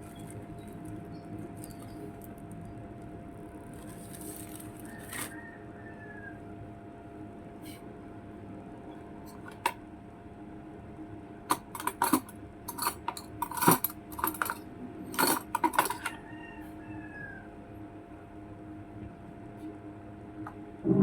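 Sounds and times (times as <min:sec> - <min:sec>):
appliance hum: 0:00.0 - 0:21.0
utensils and dishes clattering: 0:11.5 - 0:16.2.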